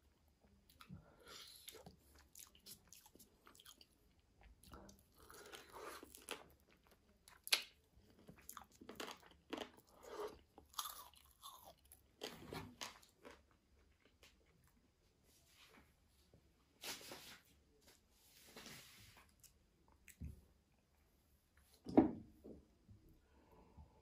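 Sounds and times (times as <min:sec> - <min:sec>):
wet chewing: 0:01.6 - 0:12.3.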